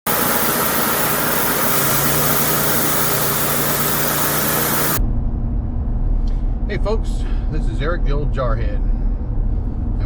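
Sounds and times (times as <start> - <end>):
machine hiss: 0.1 - 5.0
low machine hum: 0.1 - 10.0.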